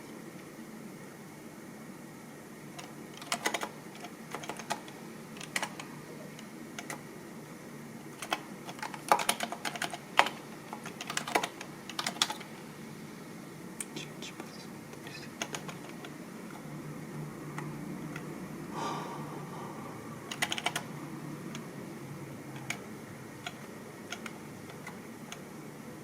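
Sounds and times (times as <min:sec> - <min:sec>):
typing on computer keyboard: 0:02.8 - 0:05.9, 0:06.8 - 0:07.0, 0:08.1 - 0:12.5, 0:15.0 - 0:16.2, 0:20.3 - 0:20.9, 0:22.6 - 0:25.5.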